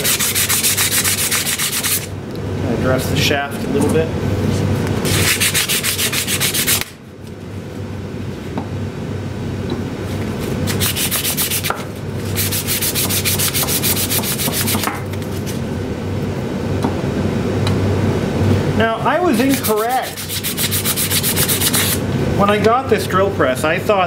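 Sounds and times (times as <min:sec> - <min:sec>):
sandpaper rubbing on metal shaft: 0:00.0 - 0:02.1, 0:05.1 - 0:06.9, 0:10.7 - 0:14.9, 0:19.4 - 0:22.0
steady low hum: 0:00.0 - 0:24.0.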